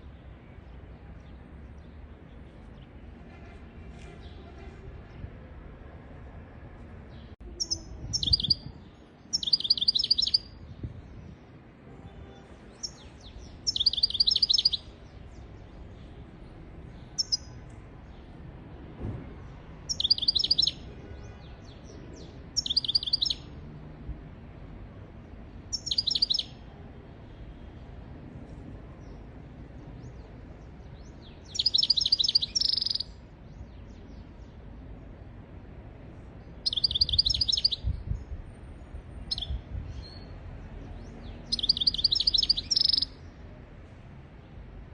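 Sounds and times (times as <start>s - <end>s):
faint background noise: 0.0s - 44.9s
goldfinch high twittering: 13.7s - 14.8s, 19.9s - 20.8s, 31.5s - 33.0s, 36.7s - 37.8s, 41.5s - 43.1s.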